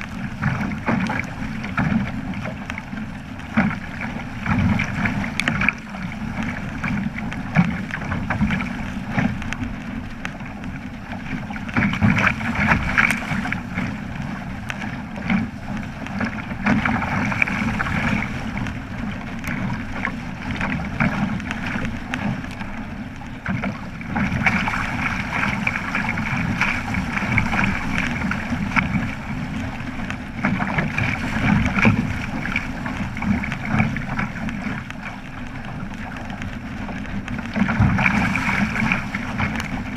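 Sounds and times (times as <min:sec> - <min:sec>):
water rushing and splashing: 0:00.0 - 0:39.9.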